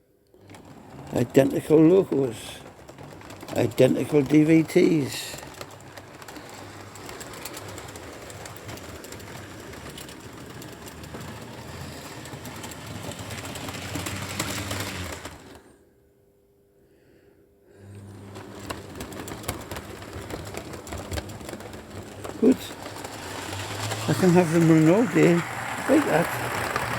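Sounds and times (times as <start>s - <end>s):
wheels clicking over rail joints: 0.4s - 15.8s, 17.9s - 26.9s
small electric motors whirring: 4.3s - 15.7s, 18.0s - 26.9s.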